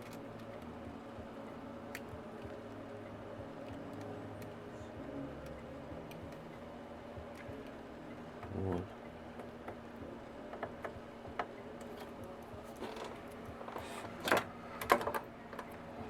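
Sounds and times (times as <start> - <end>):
faint steady hum: 0.0 - 16.0
parts and tools clicking and tapping: 10.5 - 15.8.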